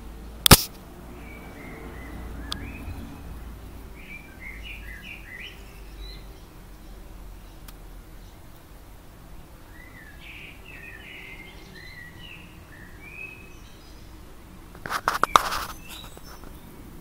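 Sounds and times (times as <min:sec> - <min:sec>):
sharp clicks and knocks: 0:00.4 - 0:00.8
songbird chirping: 0:01.1 - 0:17.0.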